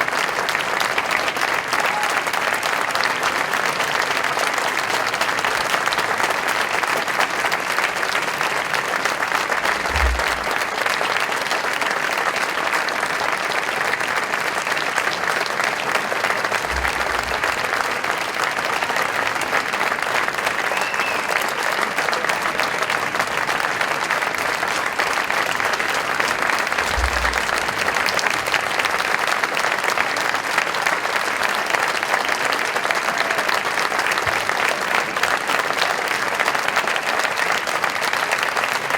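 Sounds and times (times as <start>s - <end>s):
audience applauding: 0.0s - 38.9s
dull low thuds: 9.6s - 10.7s, 16.6s - 17.9s, 25.9s - 29.2s.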